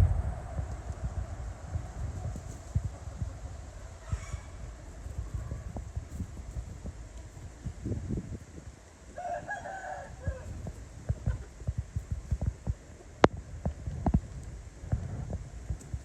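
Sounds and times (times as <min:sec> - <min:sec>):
low thumps and knocks: 0:00.0 - 0:08.7
rooster crowing: 0:03.9 - 0:05.8, 0:09.1 - 0:11.0.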